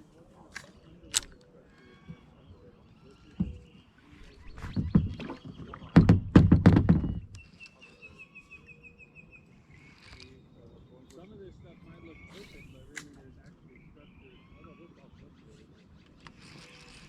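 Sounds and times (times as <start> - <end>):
gear knocking on kayak hull: 4.5 - 7.4.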